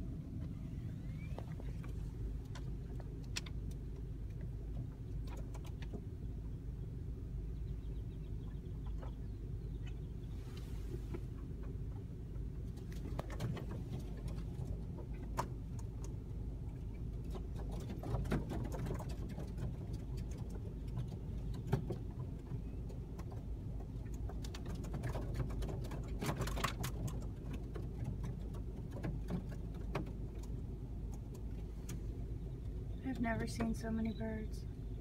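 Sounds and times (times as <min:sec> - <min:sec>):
steady low rumble: 0:00.0 - 0:35.0
blackbirds calling: 0:06.4 - 0:10.6.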